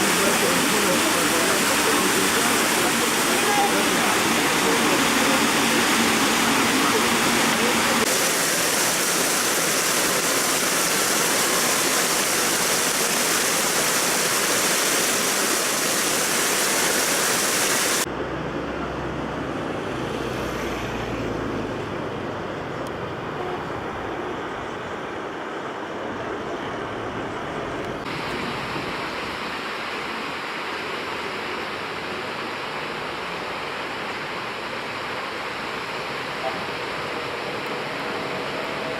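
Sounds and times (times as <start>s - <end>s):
waterfall rushing: 0.0s - 18.1s, 28.0s - 38.9s.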